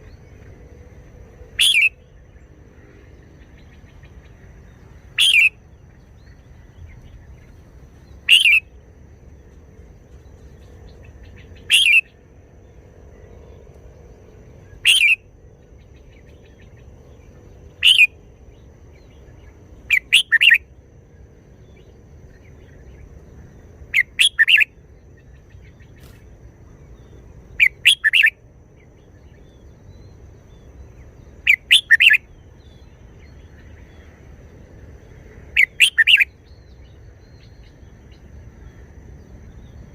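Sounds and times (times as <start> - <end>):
bulbul singing: 1.5 - 2.5, 3.4 - 9.5, 10.1 - 12.3, 14.6 - 20.8, 21.6 - 26.2, 26.9 - 34.0, 35.5 - 38.3.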